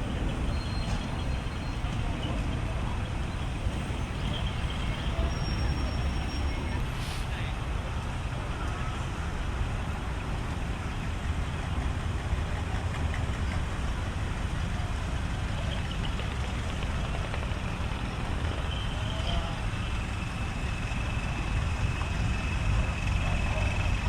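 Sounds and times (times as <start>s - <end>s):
diesel engine idling: 0.0s - 8.6s
faint high whine: 3.2s - 7.4s.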